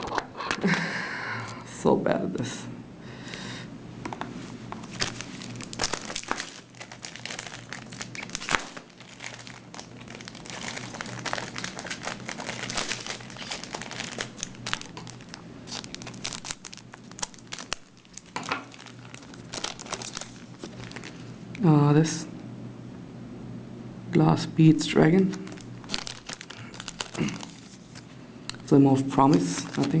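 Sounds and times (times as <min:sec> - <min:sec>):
foil wrappers crinkling: 0:04.7 - 0:21.4, 0:25.3 - 0:28.1, 0:29.3 - 0:30.0
foil wrapper snapping: 0:04.8 - 0:21.3, 0:25.3 - 0:28.6, 0:29.3 - 0:30.0.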